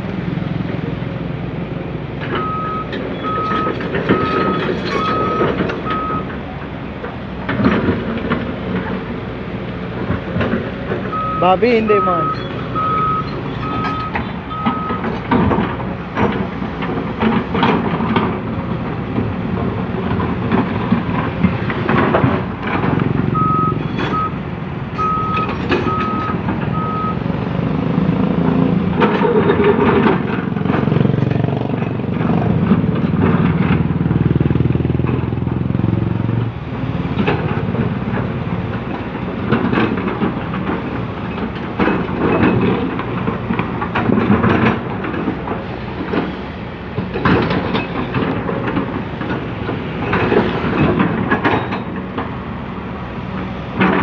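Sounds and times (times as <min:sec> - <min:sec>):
excavator diesel engine working: 0:00.0 - 0:54.0
knocks and clanks: 0:02.1 - 0:54.0
reversing alarm beeping: 0:02.4 - 0:06.3, 0:11.1 - 0:15.1, 0:23.3 - 0:24.4, 0:25.0 - 0:27.2.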